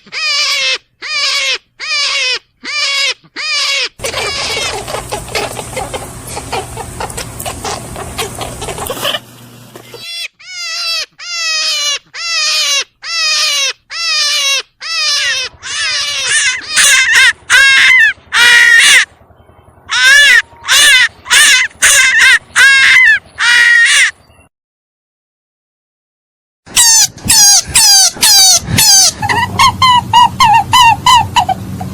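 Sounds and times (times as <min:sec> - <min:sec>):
rabbit squealing: 0:00.0 - 0:19.1, 0:19.9 - 0:24.2, 0:26.7 - 0:31.9
low hum: 0:15.3 - 0:21.8.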